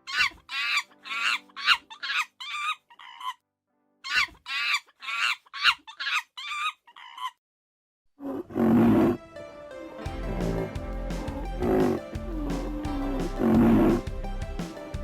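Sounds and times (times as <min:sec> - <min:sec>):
chicken calling: 0:00.0 - 0:03.4, 0:04.1 - 0:07.4.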